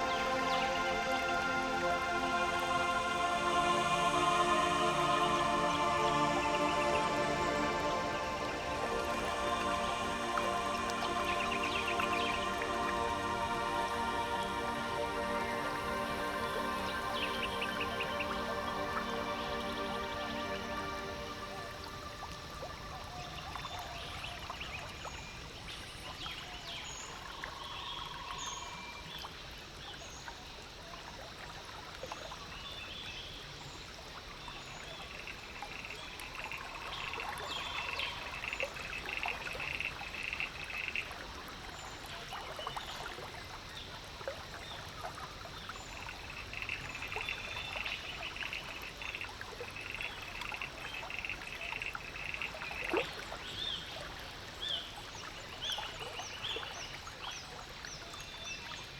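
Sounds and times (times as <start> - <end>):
frogs trilling: 0.0 - 25.0, 35.0 - 57.0
water trickling: 0.0 - 58.9.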